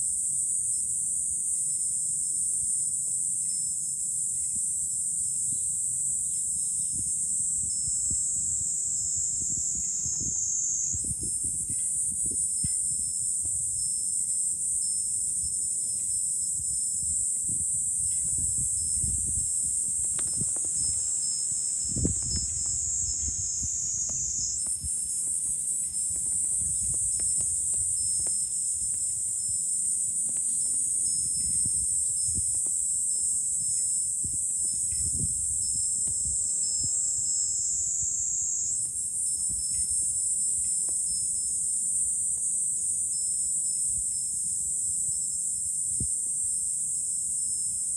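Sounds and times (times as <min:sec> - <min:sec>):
cicadas droning: 0:00.0 - 0:47.9
wind rumbling on microphone: 0:06.8 - 0:14.2, 0:15.2 - 0:41.5.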